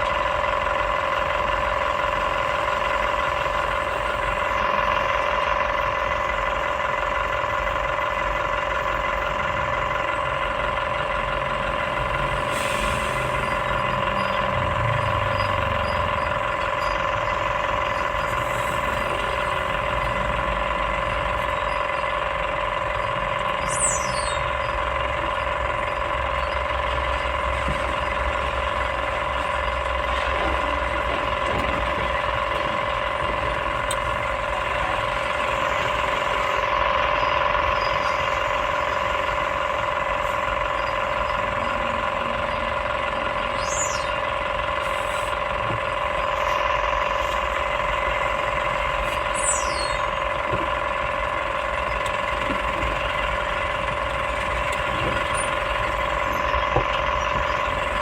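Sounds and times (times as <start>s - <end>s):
excavator engine and hydraulics: 0.0s - 58.0s
high-pitched squeaks: 49.1s - 50.3s.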